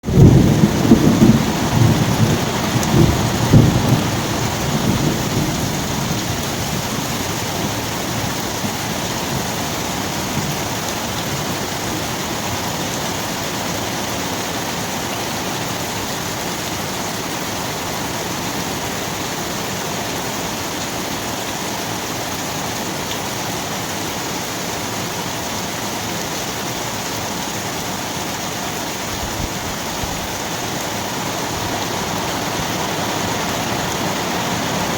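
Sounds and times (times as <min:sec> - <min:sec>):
thunder rumbling: 0:00.0 - 0:11.4
steady rain falling: 0:00.0 - 0:34.9.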